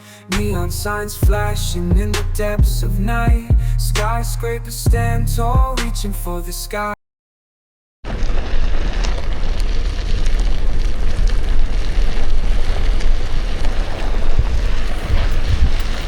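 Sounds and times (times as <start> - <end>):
low road rumble: 0.2 - 7.0, 8.1 - 16.0
wind buffeting microphone: 8.1 - 16.0.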